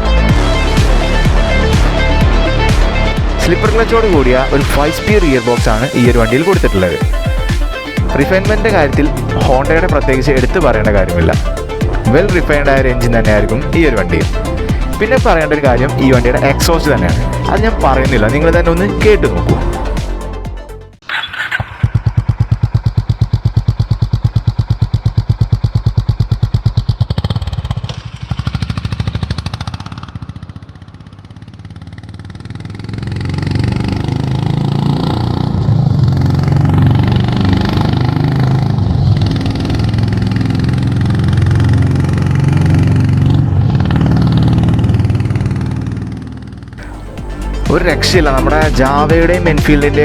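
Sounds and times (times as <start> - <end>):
motorcycle engine idling: 0.0 - 20.4, 21.0 - 50.0.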